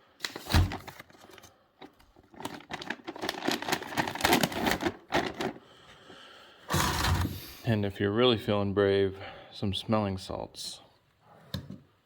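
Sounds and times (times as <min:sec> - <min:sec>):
rustling and clattering of supplies: 0:00.1 - 0:07.6.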